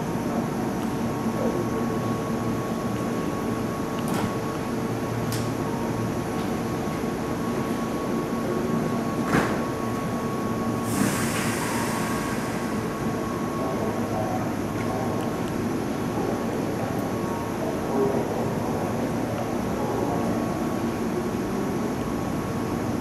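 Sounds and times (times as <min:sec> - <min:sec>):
electric train humming and whining: 0:00.0 - 0:23.0
air release hiss: 0:10.8 - 0:12.8.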